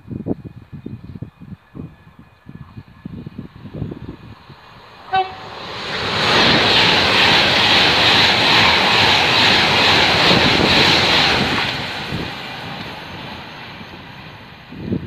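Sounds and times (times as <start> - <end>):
train passing at speed: 1.4 - 15.0
train horn toot: 5.1 - 5.6.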